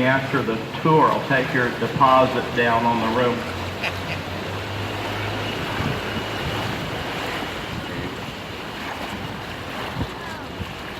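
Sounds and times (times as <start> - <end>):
water noise: 0.0 - 10.9
wind rushing over microphone: 4.7 - 10.9.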